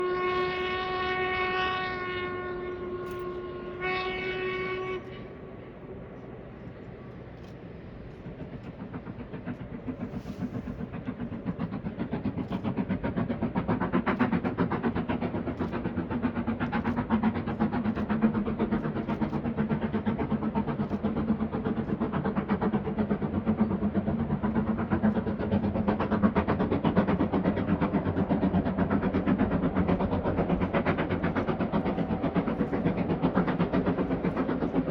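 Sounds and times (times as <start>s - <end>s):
steam locomotive whistle: 0.0s - 5.3s
train rhythmic running beat: 7.4s - 34.9s.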